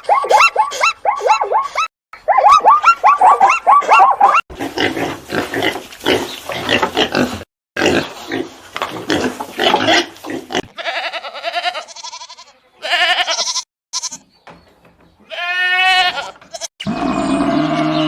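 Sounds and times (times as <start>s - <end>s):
pigs oinking: 3.4s - 10.9s
goat bleating: 10.6s - 14.3s, 15.2s - 16.7s.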